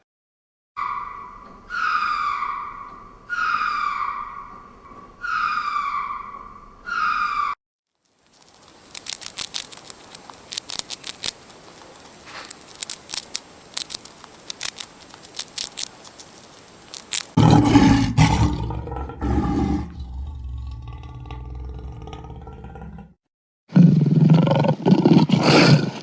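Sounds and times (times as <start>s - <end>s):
big cat calling: 0.8s - 7.6s
sharp crackling clicks: 8.0s - 17.4s.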